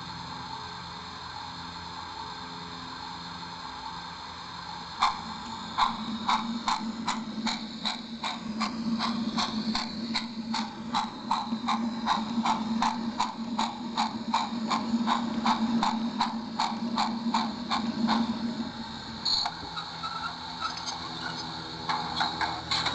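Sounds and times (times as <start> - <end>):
steady hum: 0.0 - 22.9
train wheels clicking over rail joints: 4.9 - 22.9.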